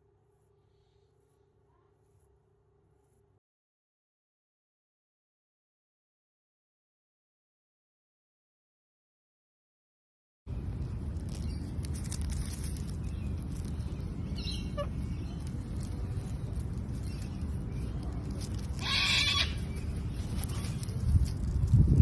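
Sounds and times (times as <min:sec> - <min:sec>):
steady low rumble: 0:10.5 - 0:22.0
parrot squawking: 0:14.4 - 0:15.2, 0:18.8 - 0:19.8.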